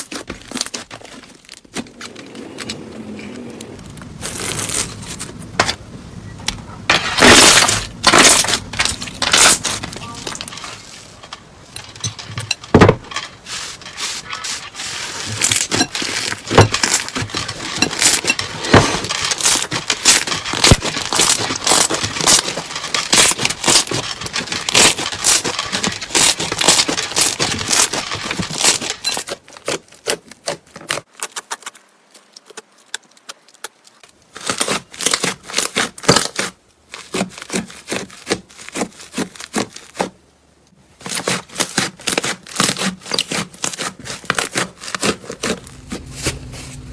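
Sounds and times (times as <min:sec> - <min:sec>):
slime crackling and popping: 0:17.9 - 0:28.9.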